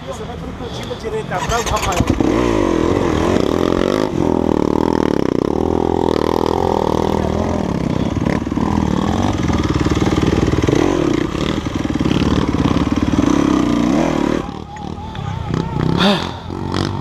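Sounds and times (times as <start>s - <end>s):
dirt bike engine revving: 1.3s - 17.0s.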